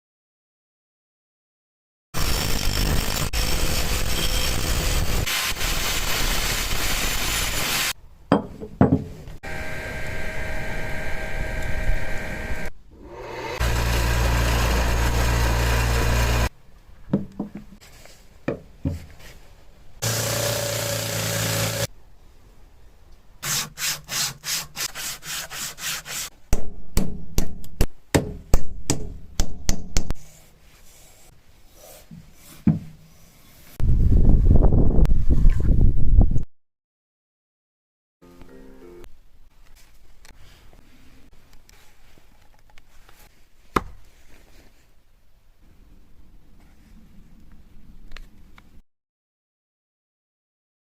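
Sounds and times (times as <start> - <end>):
power tool running: 2.2 - 7.9, 9.4 - 16.5, 20.0 - 21.9
low hum: 9.4 - 16.5
hand tool rubbing on wood: 23.4 - 26.3.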